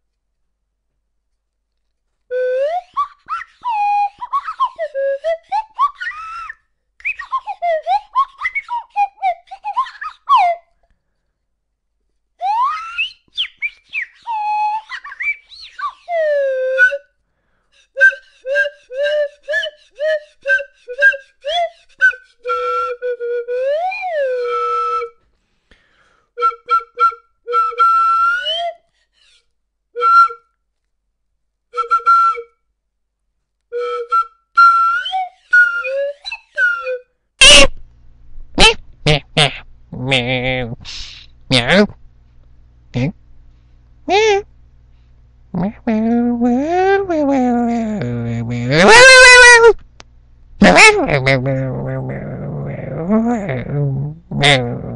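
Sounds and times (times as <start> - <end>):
whistled flute-like tune: 2.3 - 10.8, 12.4 - 17.2, 17.8 - 25.2, 26.4 - 30.6, 31.7 - 32.7, 33.7 - 37.7.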